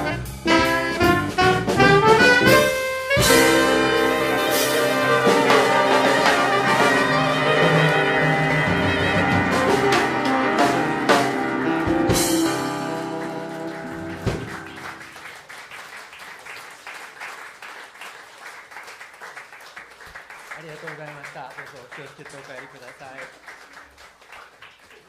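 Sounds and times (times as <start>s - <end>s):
drum and cymbal hits: 0.0s - 14.9s
jazz band playing swing: 0.0s - 15.3s
light applause: 3.6s - 25.0s.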